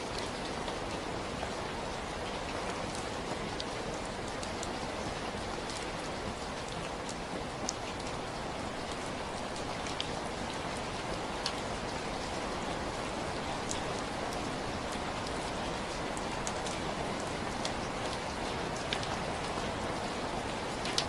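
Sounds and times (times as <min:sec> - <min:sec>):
steady rain: 0:00.0 - 0:21.0
raindrop ticks: 0:02.2 - 0:05.0, 0:05.6 - 0:08.2, 0:08.8 - 0:10.6, 0:11.4 - 0:11.6, 0:13.6 - 0:19.8.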